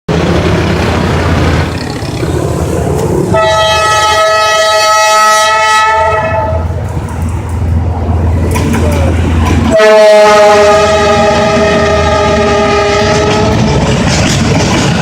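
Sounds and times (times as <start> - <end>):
train rumbling past: 0.1 - 15.0
train horn blast: 3.3 - 6.8, 9.7 - 13.7.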